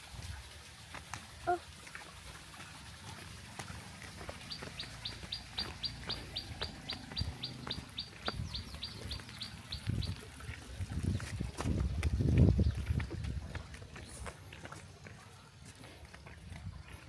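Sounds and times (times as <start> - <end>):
bird chirping rapidly: 4.4 - 10.2.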